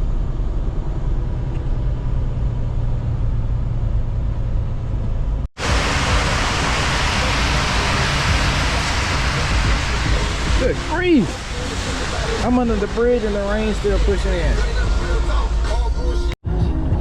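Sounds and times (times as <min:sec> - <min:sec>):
truck engine and road rumble: 0:00.0 - 0:16.4
heavy rain on truck: 0:05.6 - 0:15.7.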